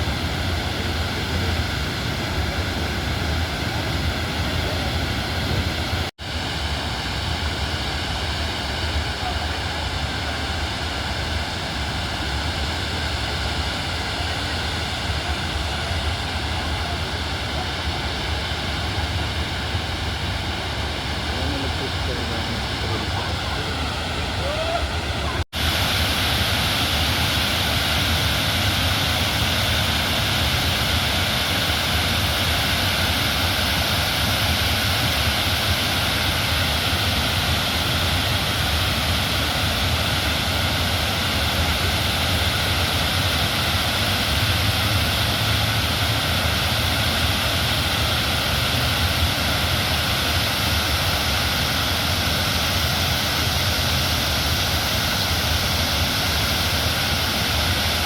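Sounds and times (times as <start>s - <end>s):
river floodwater rushing: 0.0s - 58.0s.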